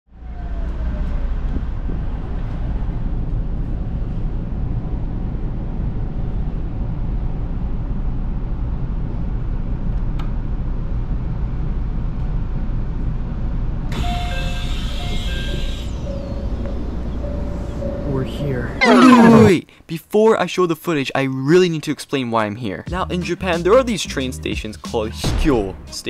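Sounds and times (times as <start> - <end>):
train carriage low rumble: 0.2 - 18.8
faint falling whine: 13.9 - 19.6.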